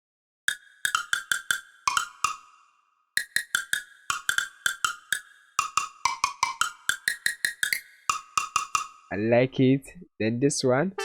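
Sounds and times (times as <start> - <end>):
synth wood block knocks: 0.5 - 2.6, 3.2 - 9.1.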